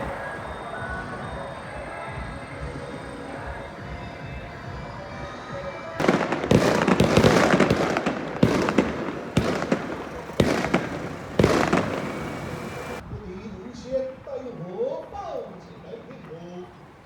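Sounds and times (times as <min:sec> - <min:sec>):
firecracker bangs: 0:00.0 - 0:13.0
firecrackers crackling: 0:00.0 - 0:13.0.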